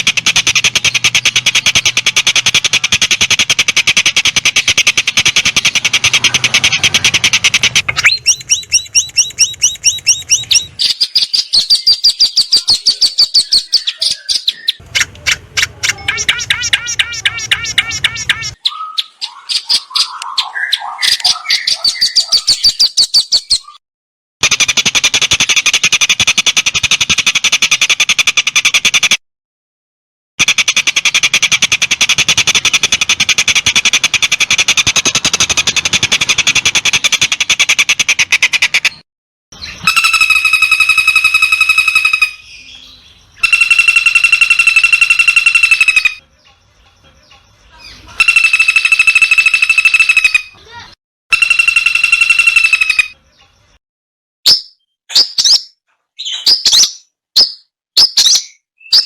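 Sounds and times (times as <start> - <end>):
bird chirps: 0.0 - 23.8, 39.6 - 53.8, 54.5 - 59.0
buzzy bird trills: 0.0 - 23.8, 30.4 - 39.0, 39.6 - 53.8
whistled bird notes: 4.2 - 15.1, 15.9 - 23.8, 39.6 - 53.6, 54.5 - 59.0.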